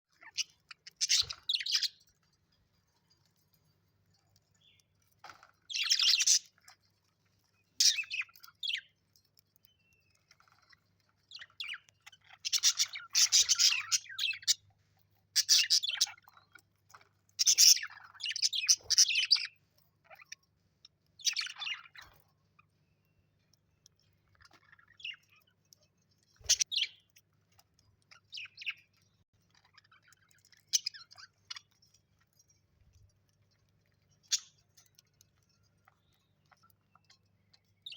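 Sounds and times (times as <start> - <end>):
parrot chirping: 0.1 - 2.4, 4.6 - 8.9, 9.6 - 14.7, 15.4 - 20.4, 21.1 - 22.7.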